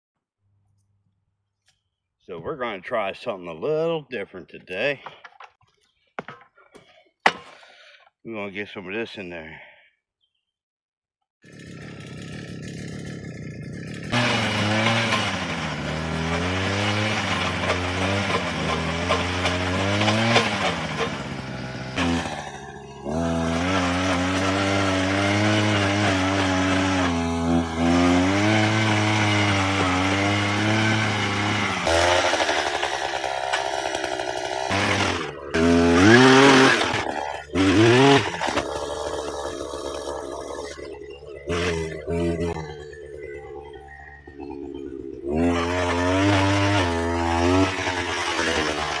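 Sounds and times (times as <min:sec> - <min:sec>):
chainsaw running: 0:11.4 - 0:49.0.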